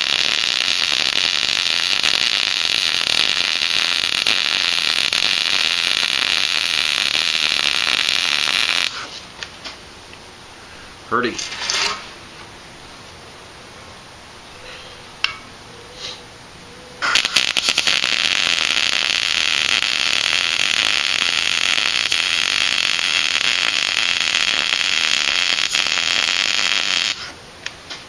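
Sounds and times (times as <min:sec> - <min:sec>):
welding arc crackling: 0:00.0 - 0:09.8, 0:17.0 - 0:27.8
sputtering pops: 0:17.0 - 0:27.3.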